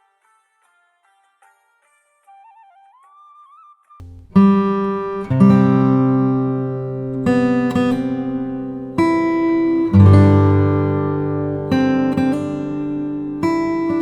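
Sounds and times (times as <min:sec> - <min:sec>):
acoustic guitar strumming chords: 0:04.0 - 0:14.0.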